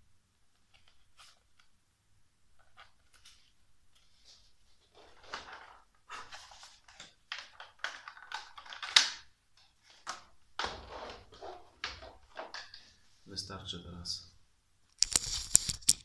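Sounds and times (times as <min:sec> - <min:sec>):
plastic parts clicking and scraping: 0:02.6 - 0:12.9, 0:15.0 - 0:16.0.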